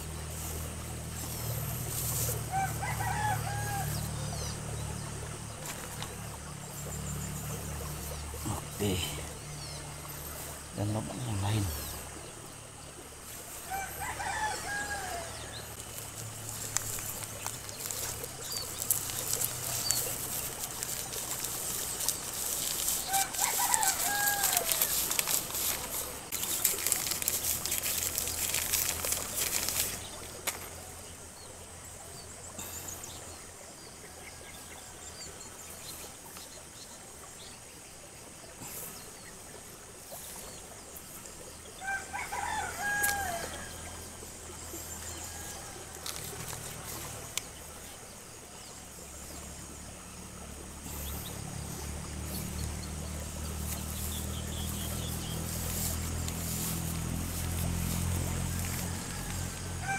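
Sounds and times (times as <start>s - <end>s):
plastic bag and soil rustling: 0.0s - 4.0s, 5.6s - 6.1s, 15.8s - 30.8s, 42.4s - 43.6s, 44.7s - 47.6s, 50.9s - 59.9s.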